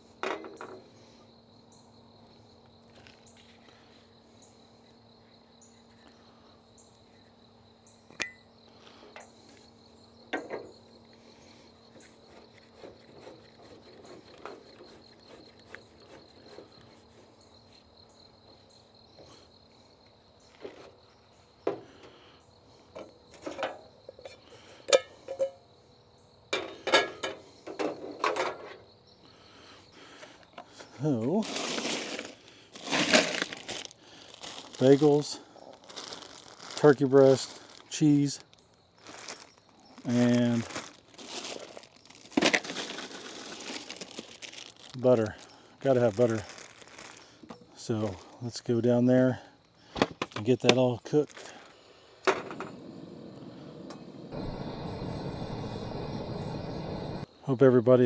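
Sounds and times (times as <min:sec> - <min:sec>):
crickets chirping: 0:00.0 - 0:58.0
knocks and clatter of handling: 0:23.0 - 0:25.6, 0:26.6 - 0:28.8, 0:50.0 - 0:51.5.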